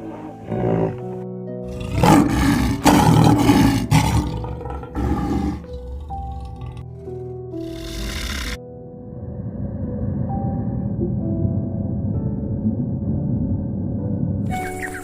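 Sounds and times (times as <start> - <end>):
lion roaring: 0.0 - 11.0
background music with held notes: 0.0 - 15.0.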